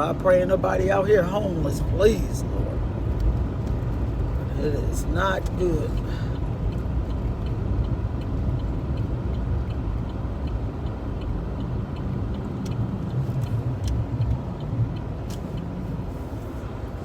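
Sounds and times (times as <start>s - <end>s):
engine and road rumble: 0.0s - 17.0s
faint regular ticking: 2.9s - 16.0s.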